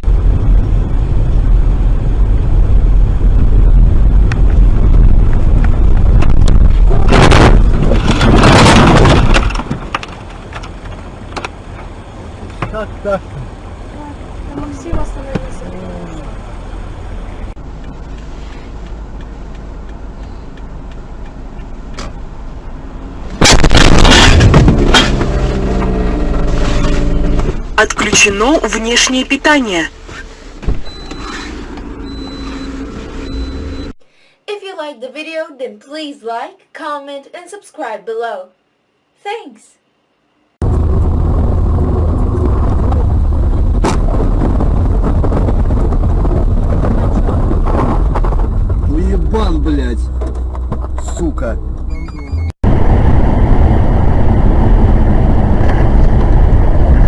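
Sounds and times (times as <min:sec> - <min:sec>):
car driving rumble: 0:00.0 - 0:34.0, 0:40.6 - 0:57.0.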